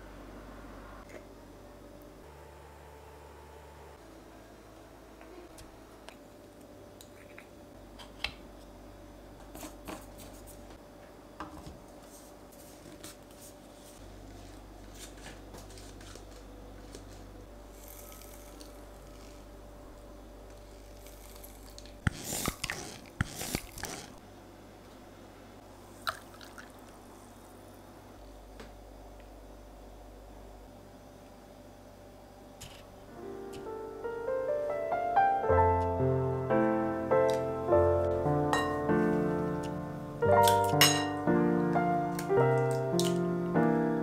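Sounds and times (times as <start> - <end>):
loud crinkling or tearing: 20.9 - 24.2.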